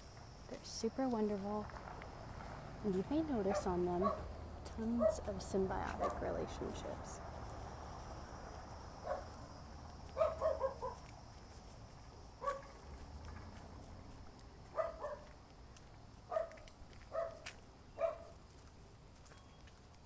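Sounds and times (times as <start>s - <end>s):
high insect drone: 0.0s - 15.6s
dog barking: 3.5s - 4.3s, 6.0s - 6.2s, 9.0s - 9.4s, 10.1s - 11.1s, 12.4s - 12.8s, 14.7s - 15.3s, 16.3s - 18.4s.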